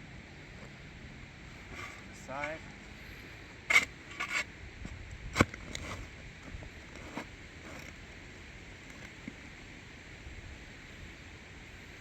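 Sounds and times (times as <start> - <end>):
shovel scraping soil: 1.6 - 2.6, 3.6 - 4.5, 5.3 - 6.1.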